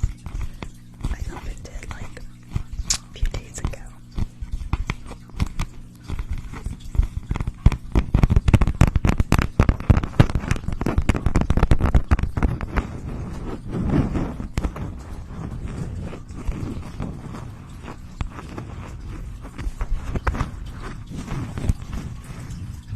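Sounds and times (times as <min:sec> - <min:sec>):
clicks and crackles near microphone: 0:00.0 - 0:22.9
soft rustle: 0:09.6 - 0:22.9.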